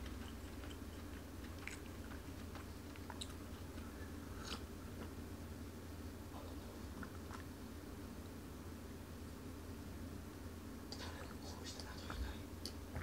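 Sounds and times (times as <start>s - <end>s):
man chewing food: 0.0s - 7.9s, 12.0s - 13.0s.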